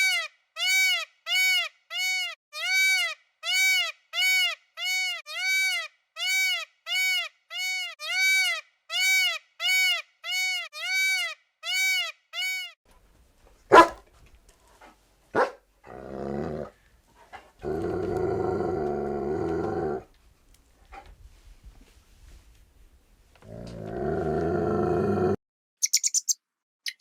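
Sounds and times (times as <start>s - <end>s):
low growl-like animal call: 15.9s - 16.8s, 17.6s - 20.1s, 23.4s - 25.4s.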